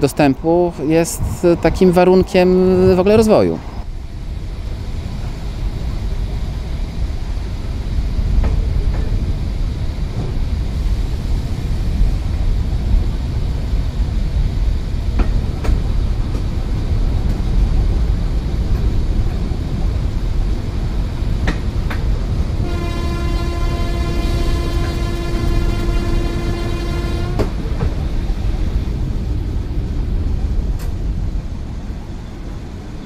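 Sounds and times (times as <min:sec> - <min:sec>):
train rumbling on track: 0:00.0 - 0:33.0.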